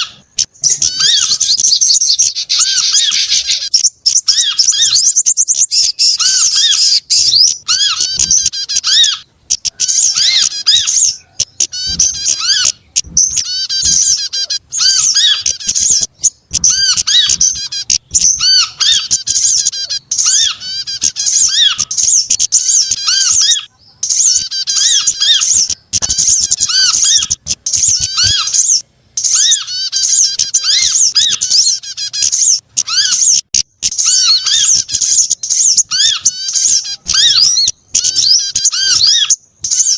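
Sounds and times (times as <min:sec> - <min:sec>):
repeated upslurred bird notes: 0:00.0 - 0:39.9
songbirds chattering and trilling: 0:00.0 - 0:39.9.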